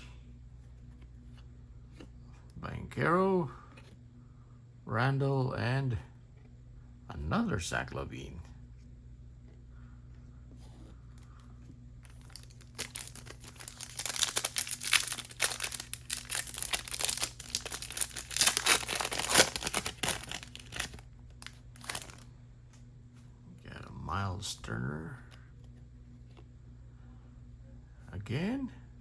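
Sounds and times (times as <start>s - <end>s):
foil wrapper tearing and crinkling: 12.1s - 22.2s.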